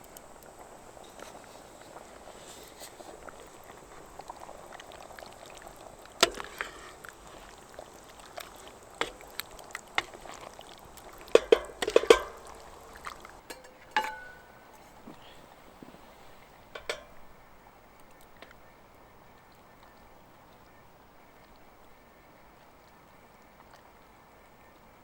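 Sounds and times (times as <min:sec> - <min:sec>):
cookware clinking and knocking: 0:11.3 - 0:14.5, 0:16.8 - 0:17.1
ringing metallic clink: 0:13.5 - 0:14.6.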